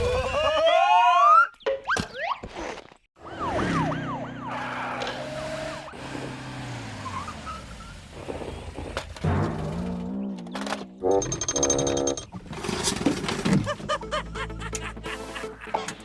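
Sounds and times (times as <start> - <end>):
siren wails: 3.2 - 5.9.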